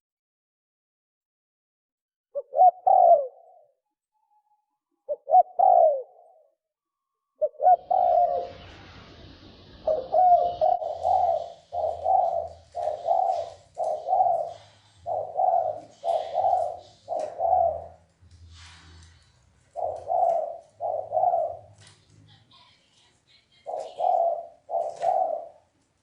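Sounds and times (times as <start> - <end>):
dove cooing: 2.4 - 3.8, 5.1 - 6.6, 7.4 - 8.8, 9.8 - 22.0, 23.6 - 25.7.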